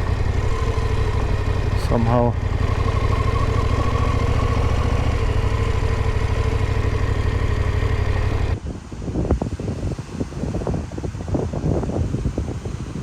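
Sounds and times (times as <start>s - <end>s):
motorcycle engine running: 0.0s - 9.0s
wind on microphone: 0.0s - 13.0s.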